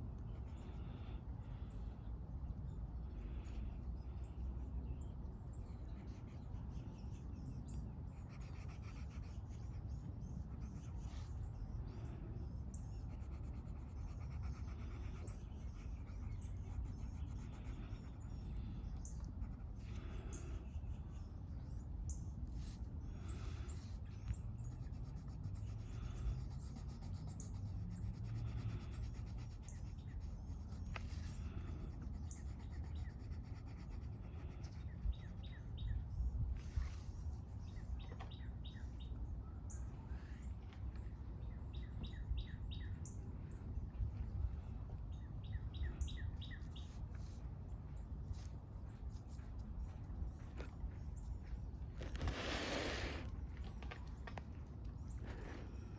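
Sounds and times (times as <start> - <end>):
low outdoor rumble: 0.0 - 55.9
coloring scratching on paper: 8.1 - 9.8, 10.4 - 11.4, 13.0 - 18.4, 19.3 - 20.0, 22.6 - 35.5
birds chirping: 29.4 - 55.9.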